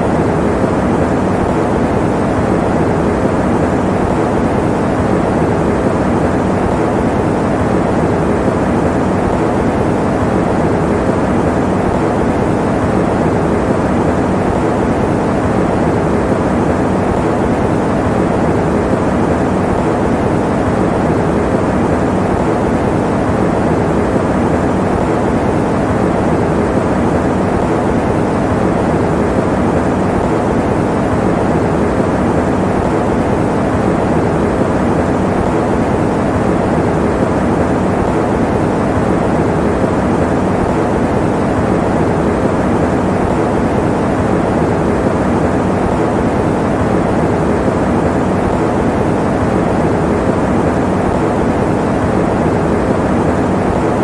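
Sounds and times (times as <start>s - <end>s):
electric fan running: 0.0s - 54.0s.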